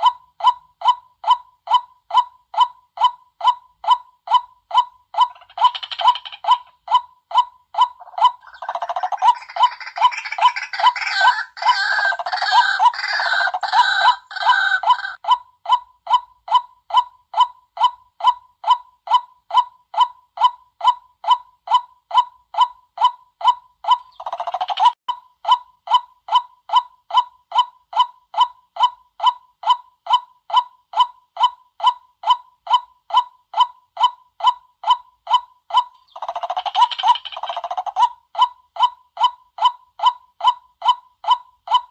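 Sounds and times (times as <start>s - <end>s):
harsh croaking: 8.0s - 15.2s.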